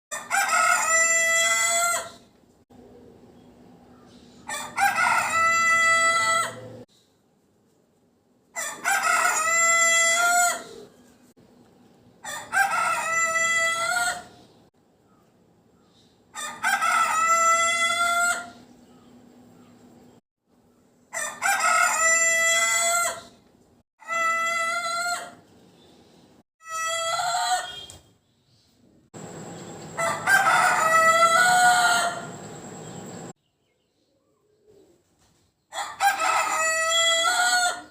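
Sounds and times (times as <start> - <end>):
chicken crowing: 0.1 - 2.2, 4.5 - 6.8, 8.5 - 10.9, 12.2 - 14.3, 16.3 - 18.6, 21.1 - 23.4, 24.0 - 25.4, 26.6 - 27.9, 29.9 - 33.0, 35.7 - 37.9.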